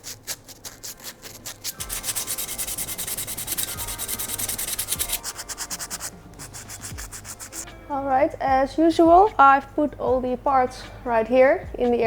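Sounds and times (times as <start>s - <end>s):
hand sanding metal: 0.0s - 7.6s.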